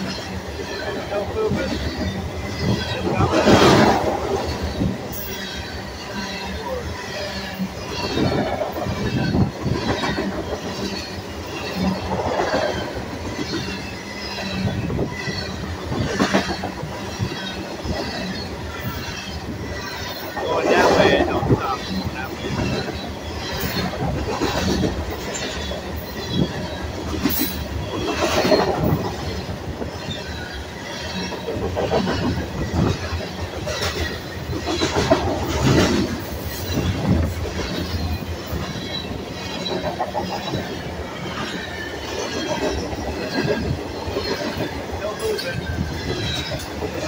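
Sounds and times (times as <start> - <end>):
train wheels rumbling on rail: 0.0 - 47.0
wheels clacking over rail joints: 0.0 - 47.0.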